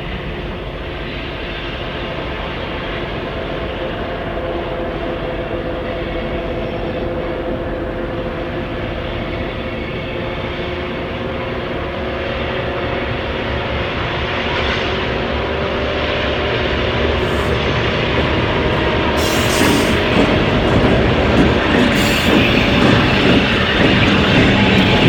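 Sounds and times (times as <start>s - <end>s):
model diesel locomotive engine: 0.0s - 25.0s
hiss: 17.2s - 25.0s.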